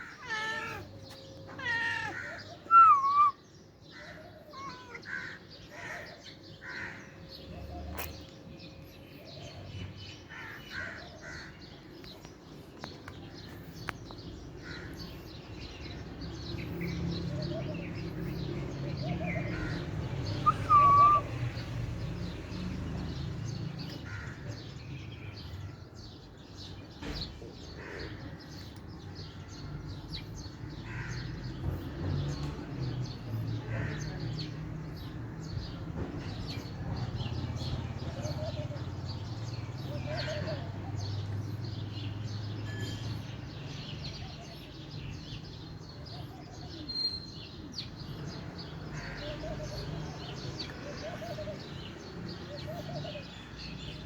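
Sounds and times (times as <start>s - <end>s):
cat meowing: 0.1s - 3.3s, 4.4s - 5.1s, 20.5s - 21.2s.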